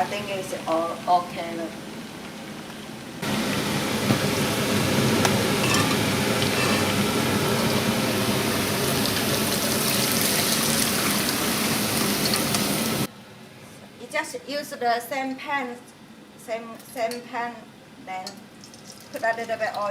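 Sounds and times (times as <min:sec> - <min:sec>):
chicken deep-frying in oil: 0:03.2 - 0:13.1, 0:18.6 - 0:19.9.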